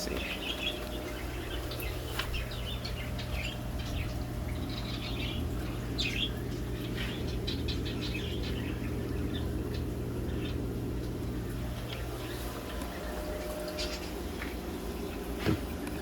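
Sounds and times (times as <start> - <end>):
small birds chirping: 0.0 - 16.0
steady low hum: 0.0 - 16.0.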